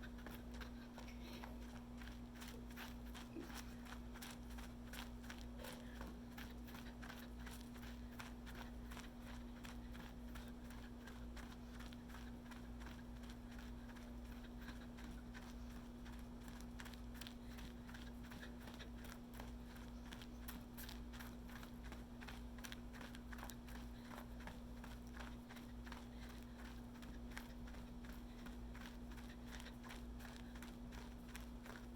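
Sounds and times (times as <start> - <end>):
running footsteps: 0.0 - 31.9
steady low hum: 0.0 - 31.9.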